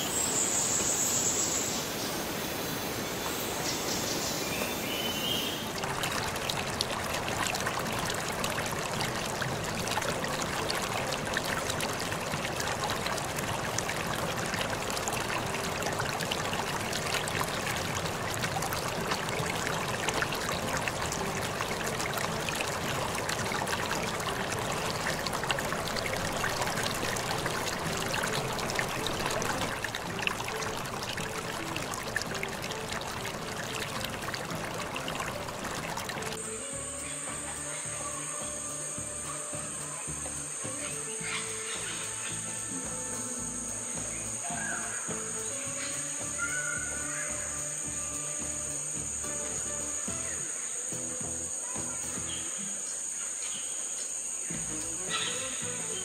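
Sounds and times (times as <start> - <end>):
stream water running: 0.0 - 56.0.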